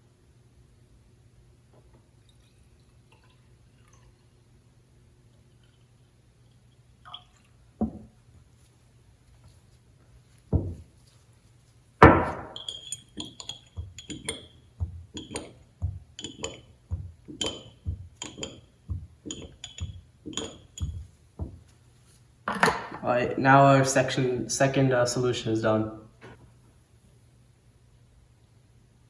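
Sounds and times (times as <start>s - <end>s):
knocks on a tabletop: 7.8s - 8.1s, 10.6s - 10.8s, 12.0s - 12.6s
stirrer clinking against glass: 12.2s - 21.1s.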